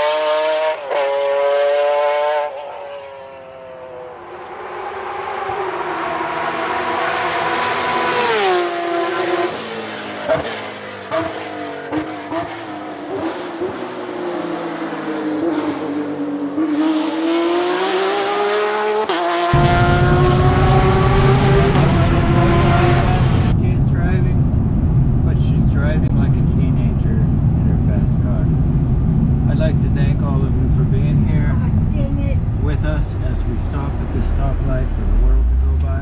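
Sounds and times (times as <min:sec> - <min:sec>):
car engine accelerating: 0:00.0 - 0:36.0
loud low rumble: 0:19.5 - 0:36.0.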